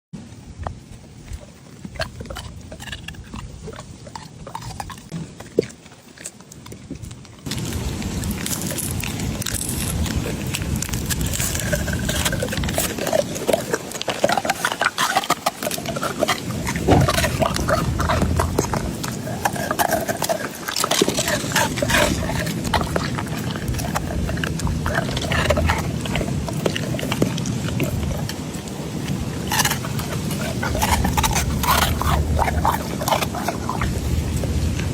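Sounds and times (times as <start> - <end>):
dog snuffling: 7.5 - 34.9.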